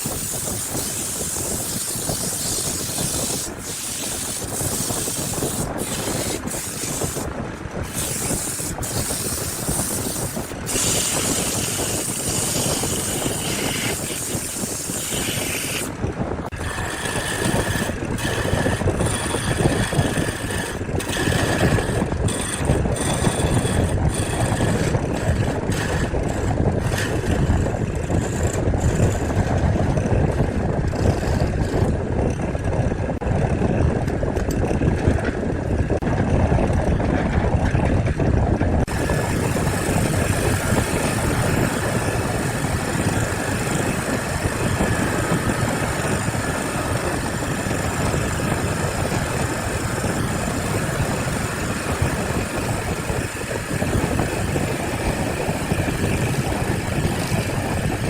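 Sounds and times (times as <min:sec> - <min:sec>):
motor running: 0:00.0 - 0:16.0, 0:38.9 - 0:58.0.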